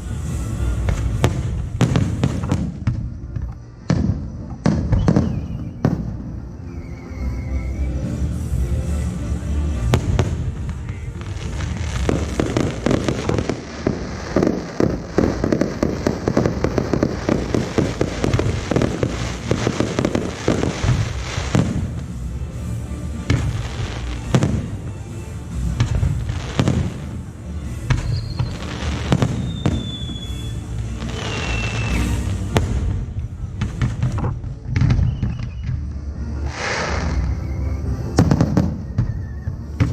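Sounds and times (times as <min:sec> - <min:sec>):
fireworks bursting and crackling: 0:00.0 - 0:39.9
whistling firework shells: 0:00.3 - 0:08.4, 0:10.0 - 0:22.1, 0:27.8 - 0:34.1, 0:34.7 - 0:35.9, 0:36.5 - 0:39.9.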